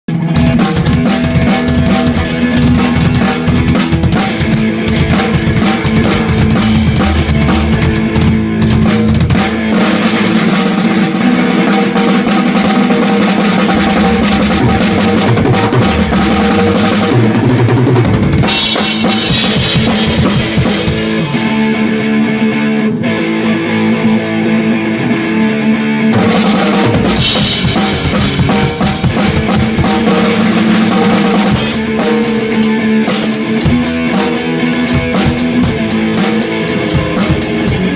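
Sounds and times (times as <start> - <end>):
rock band playing: 0.1 - 37.9
bass drum: 0.4 - 21.5, 26.2 - 32.8, 33.4 - 37.9
cymbals: 0.6 - 7.9.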